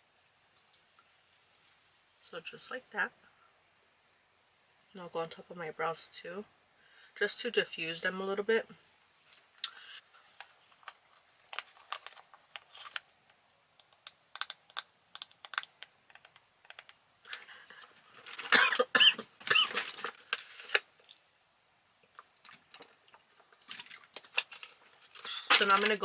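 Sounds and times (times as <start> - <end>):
makeup items clicking: 13.8 - 17.4
clattering and rustling: 18.0 - 18.8, 19.4 - 20.8.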